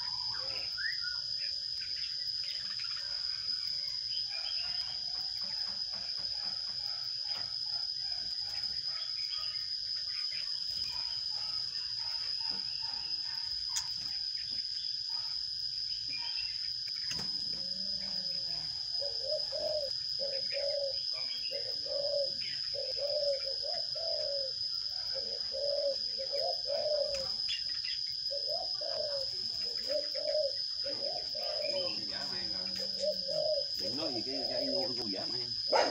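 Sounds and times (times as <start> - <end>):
small birds chirping: 0.0 - 35.9
dove cooing: 17.1 - 35.9.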